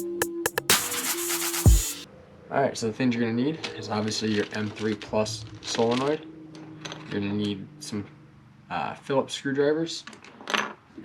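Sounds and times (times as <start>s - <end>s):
drum machine hits: 0.0s - 2.0s.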